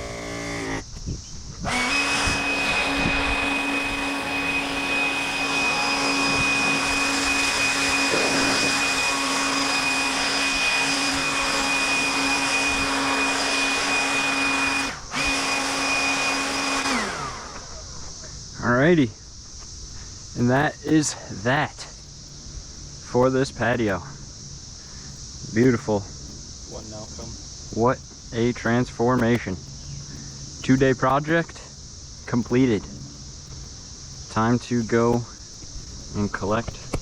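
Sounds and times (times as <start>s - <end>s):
small electric motor whining: 0.0s - 18.5s
rushing hiss: 0.0s - 37.0s.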